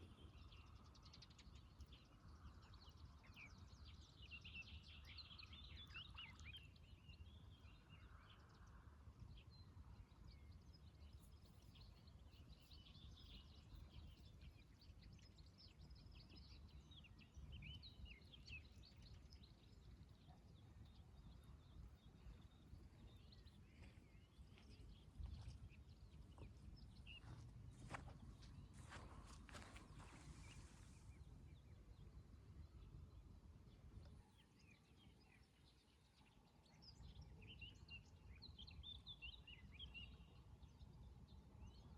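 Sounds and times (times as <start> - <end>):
small birds chirping: 9.6 - 41.9.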